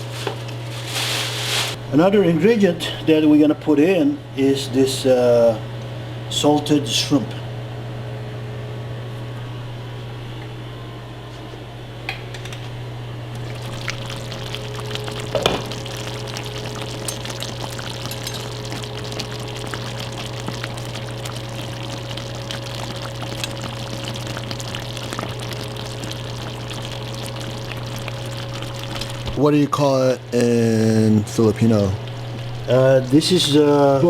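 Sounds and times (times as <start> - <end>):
pot simmering and bubbling: 13.3 - 29.8, 30.6 - 34.0.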